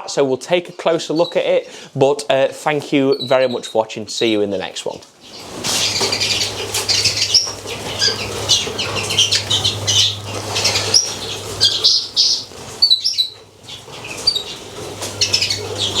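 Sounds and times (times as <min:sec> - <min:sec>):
small birds chirping: 0:00.2 - 0:16.0
steady low hum: 0:05.4 - 0:16.0.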